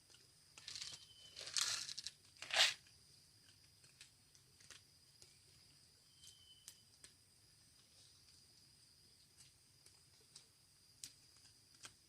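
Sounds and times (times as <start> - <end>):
faint high-pitched tone: 6.0 - 6.8.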